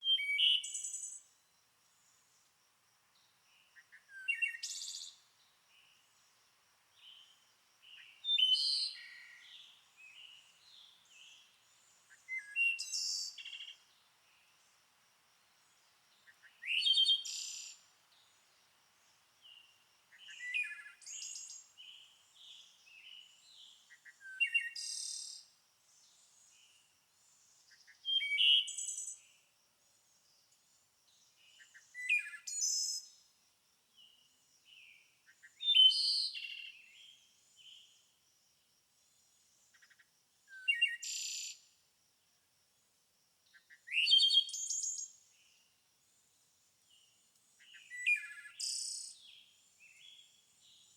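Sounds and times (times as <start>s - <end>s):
songbird singing trills: 0.0s - 1.3s, 3.6s - 5.2s, 7.0s - 13.9s, 16.2s - 18.3s, 19.4s - 25.4s, 27.7s - 29.4s, 34.0s - 38.0s, 40.5s - 41.6s, 43.6s - 45.6s, 46.9s - 50.9s.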